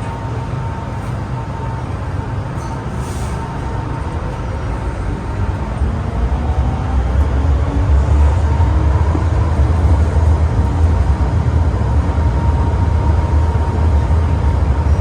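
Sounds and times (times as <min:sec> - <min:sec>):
train rumbling with whine: 0:00.0 - 0:15.0.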